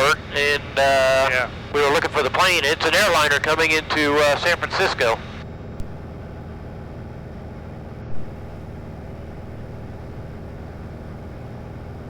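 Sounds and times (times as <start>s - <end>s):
airplane engine droning: 0.0s - 12.0s.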